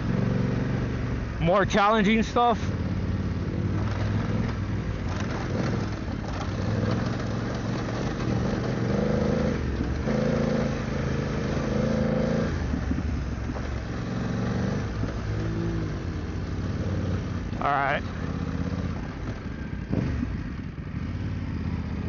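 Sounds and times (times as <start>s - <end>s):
motorcycle engine running: 0.0s - 22.0s
wind: 0.0s - 22.0s.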